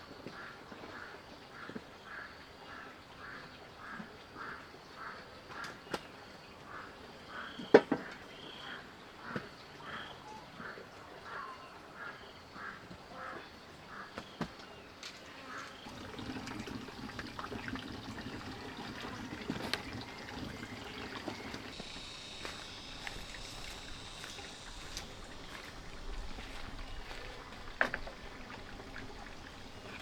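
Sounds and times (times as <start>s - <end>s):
water trickling and splashing: 15.1s - 30.0s
frog calling: 18.3s - 30.0s
high insect drone: 19.2s - 30.0s.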